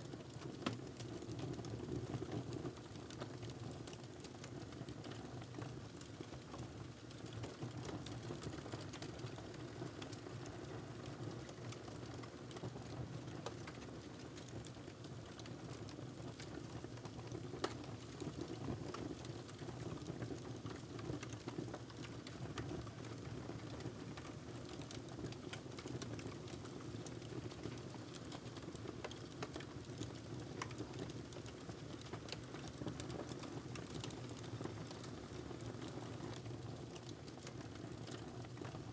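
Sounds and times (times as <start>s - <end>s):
wood fire crackling: 13.3s - 38.9s.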